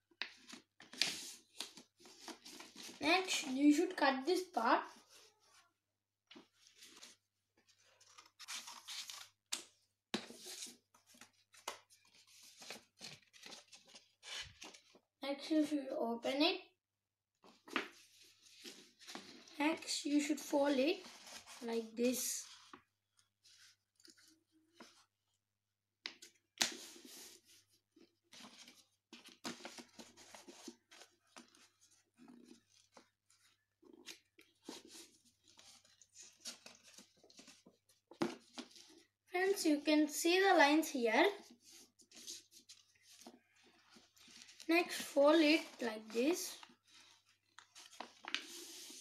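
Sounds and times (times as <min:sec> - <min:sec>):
paper rustling and crinkling: 0:00.2 - 0:03.4, 0:06.3 - 0:15.0, 0:17.4 - 0:19.6, 0:26.2 - 0:39.1, 0:41.4 - 0:49.0.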